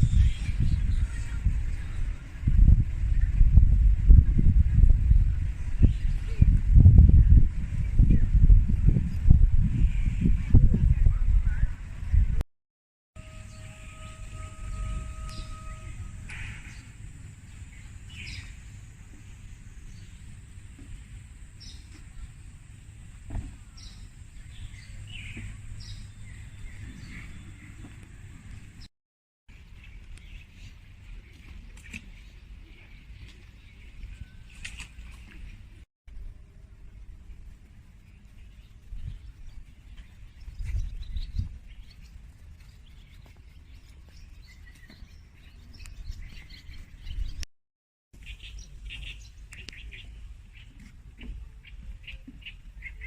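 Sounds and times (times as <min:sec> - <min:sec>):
low outdoor rumble: 0:00.0 - 0:12.4, 0:34.9 - 0:44.2
birds chirping: 0:13.2 - 0:22.5, 0:23.6 - 0:28.9, 0:37.9 - 0:47.4, 0:48.2 - 0:53.0
soft thump: 0:23.3 - 0:23.6
small birds chirping: 0:37.7 - 0:47.4, 0:48.2 - 0:53.0.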